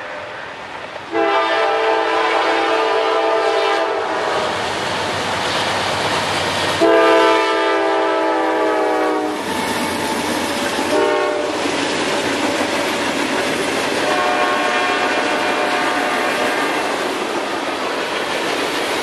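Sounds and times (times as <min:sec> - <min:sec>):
train rumble and wheel noise: 0:00.0 - 0:19.0
locomotive air horn: 0:01.1 - 0:04.6, 0:06.8 - 0:09.4, 0:10.8 - 0:11.6, 0:14.0 - 0:16.9.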